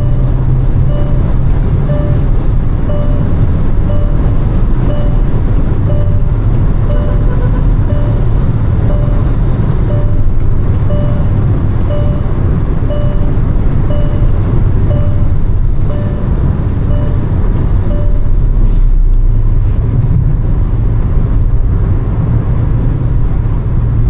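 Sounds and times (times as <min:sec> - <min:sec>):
electronic warning chime: 0:00.0 - 0:02.3, 0:02.9 - 0:18.4
car engine and road noise: 0:00.0 - 0:24.0.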